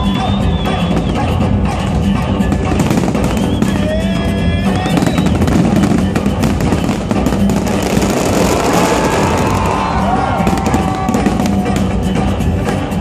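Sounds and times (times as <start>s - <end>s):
short whistling tone: 0.0s - 1.4s, 3.2s - 3.9s, 4.7s - 5.4s
fireworks crackling and popping: 0.0s - 12.5s
music playing: 0.0s - 13.0s.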